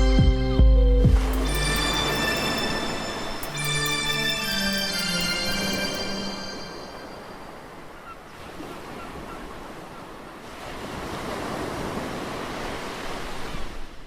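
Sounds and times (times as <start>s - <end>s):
sea surf washing in: 1.2s - 14.0s.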